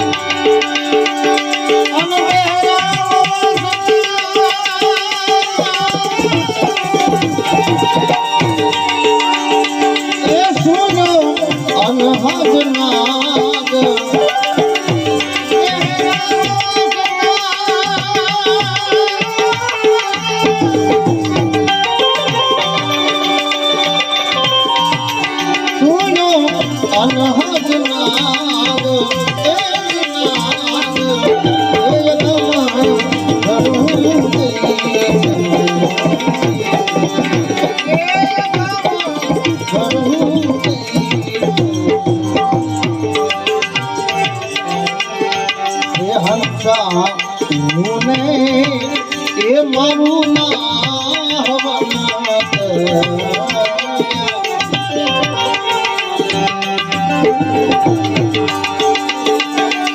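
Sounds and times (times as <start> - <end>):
melody instrument with wavering notes: 0.0 - 59.9
tabla rhythm: 0.0 - 59.9.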